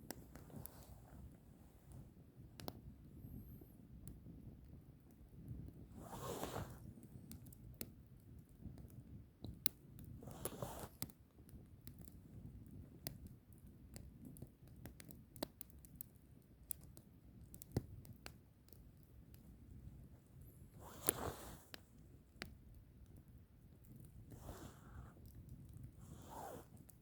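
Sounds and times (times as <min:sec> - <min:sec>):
firewood crackling and popping: 0:00.0 - 0:03.2, 0:03.9 - 0:27.0.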